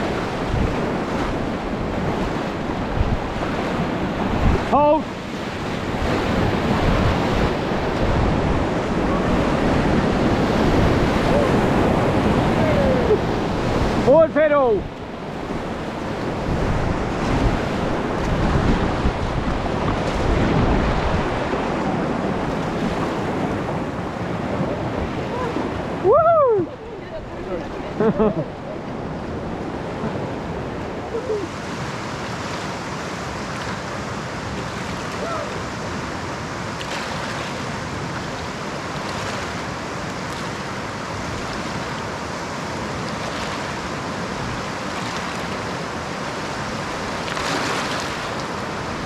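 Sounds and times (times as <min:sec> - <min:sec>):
wind buffeting microphone: 0:00.0 - 0:14.1, 0:14.7 - 0:33.4
river whitewater rushing: 0:00.0 - 0:49.0.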